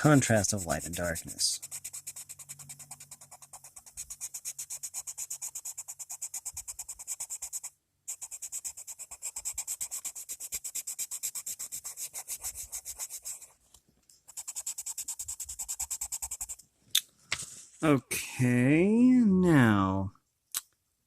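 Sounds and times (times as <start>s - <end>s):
colored pencil scratching on paper: 0.0s - 13.6s, 14.2s - 16.6s.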